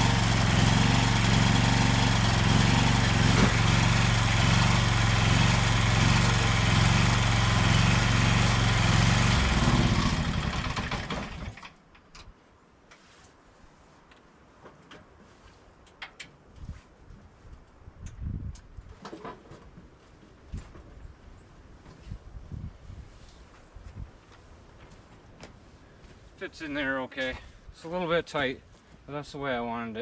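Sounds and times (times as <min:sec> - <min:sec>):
tractor engine running: 0:00.0 - 0:11.7.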